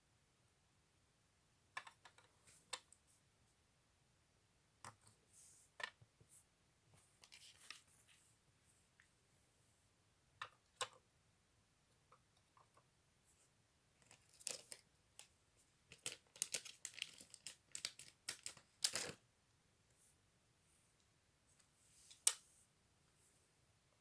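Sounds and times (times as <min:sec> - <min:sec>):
crinkly rustling: 0:14.0 - 0:15.3, 0:15.9 - 0:19.2.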